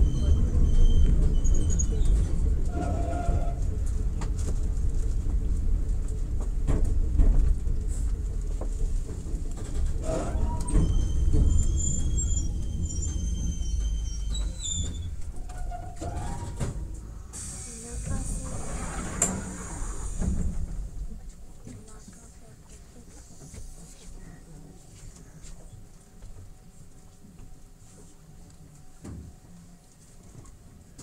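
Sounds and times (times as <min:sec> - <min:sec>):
high brake squeal: 0:00.0 - 0:02.0, 0:10.0 - 0:16.6
electric train rumbling: 0:00.0 - 0:22.4.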